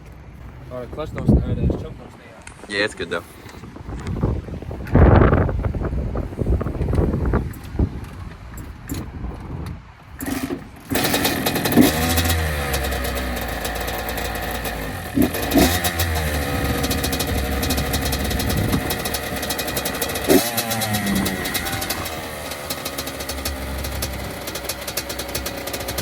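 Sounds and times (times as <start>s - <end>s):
engine throttle blips: 10.2s - 26.0s
two-stroke engine starting and running: 10.2s - 26.0s.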